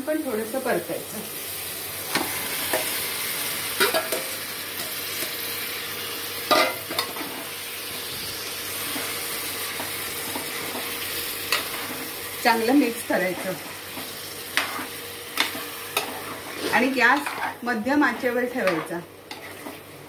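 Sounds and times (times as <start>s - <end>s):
chicken sizzling in hot oil: 0.0s - 20.0s
utensil scraping and stirring: 13.2s - 20.0s.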